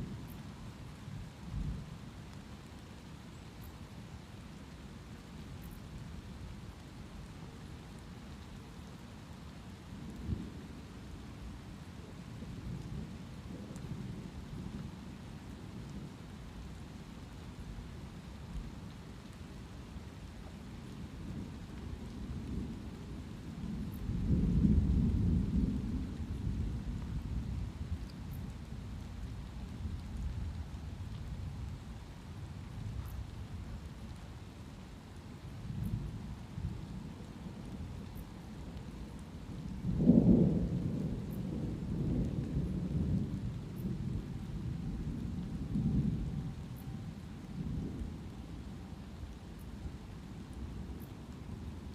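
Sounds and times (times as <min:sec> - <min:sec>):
light rain: 0:00.0 - 0:51.9
distant thunder rumbling: 0:38.9 - 0:48.1.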